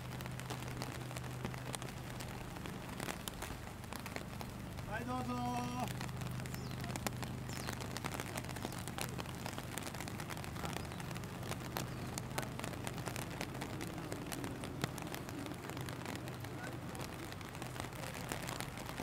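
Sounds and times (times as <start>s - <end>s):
rain falling: 0.0s - 19.0s
sharp raindrop ticks: 0.0s - 19.0s.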